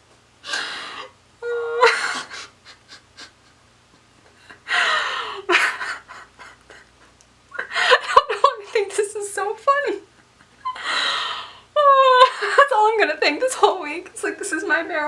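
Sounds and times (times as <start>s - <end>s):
woman laughing breathily: 0.4s - 8.8s, 10.3s - 12.7s.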